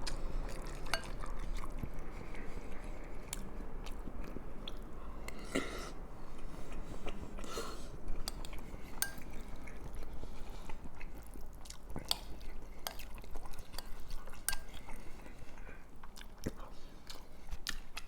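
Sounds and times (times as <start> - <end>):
spoon scraping a bowl: 8.3 - 9.4.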